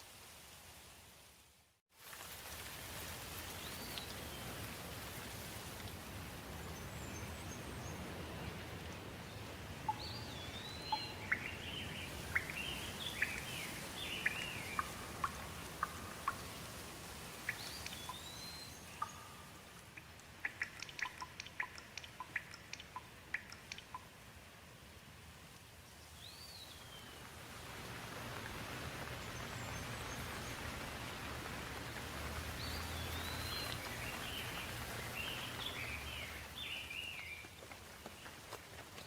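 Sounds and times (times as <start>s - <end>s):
light rain: 0.0s - 39.0s
songbirds chirping and whistling: 9.9s - 16.5s, 17.5s - 19.4s, 32.6s - 37.6s.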